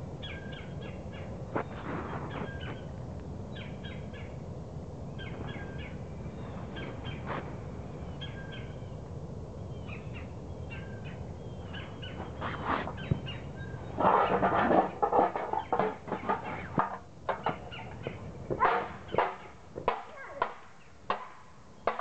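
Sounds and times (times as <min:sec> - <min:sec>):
steady low rumble: 0:00.0 - 0:20.2
birds calling sharp notes: 0:00.2 - 0:02.9, 0:09.6 - 0:16.8, 0:17.4 - 0:21.0.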